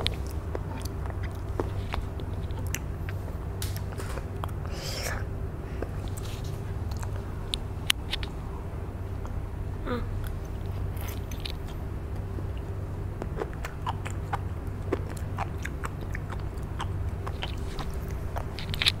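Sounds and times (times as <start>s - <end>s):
child chewing crisp seaweed: 0.0s - 8.4s, 10.2s - 19.0s
low hum: 0.0s - 19.0s.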